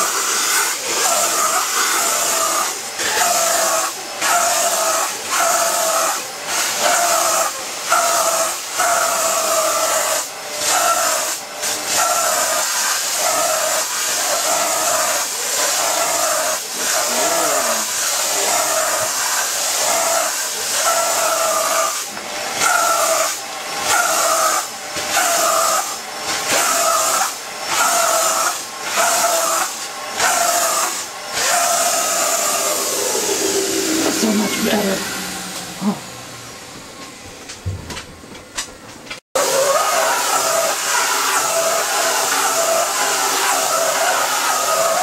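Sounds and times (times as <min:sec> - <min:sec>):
vacuum cleaner hiss and whine: 0:00.0 - 0:45.0.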